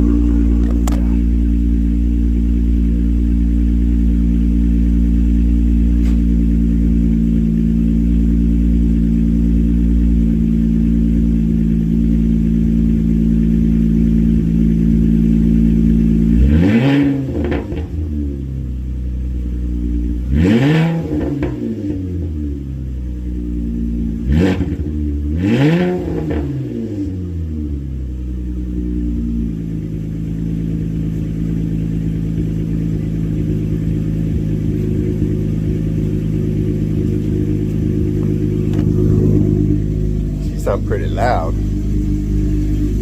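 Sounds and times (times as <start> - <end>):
engine revving: 0.0 - 11.8, 13.8 - 18.2, 20.2 - 22.5, 24.1 - 27.4, 32.0 - 43.0
engine idling: 0.0 - 43.0.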